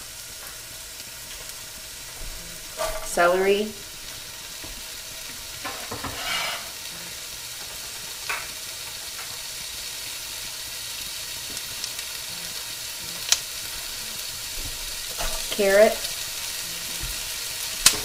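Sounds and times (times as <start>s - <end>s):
vegetables sizzling in oil: 0.0s - 18.0s.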